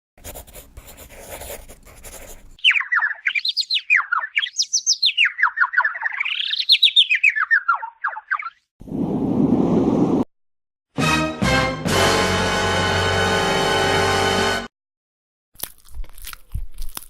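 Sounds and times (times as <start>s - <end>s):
high bird-like chirps: 2.6s - 8.7s.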